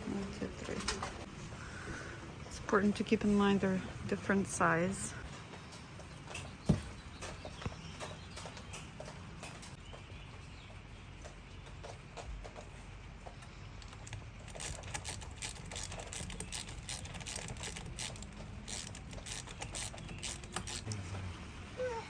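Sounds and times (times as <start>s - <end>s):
mechanical clicks and rattles: 13.8s - 21.0s.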